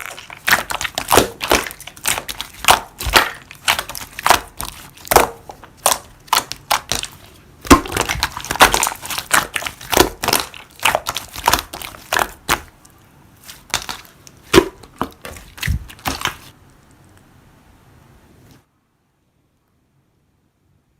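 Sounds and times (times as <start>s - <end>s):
slime popping and crackling: 0.0s - 12.8s, 13.4s - 17.0s.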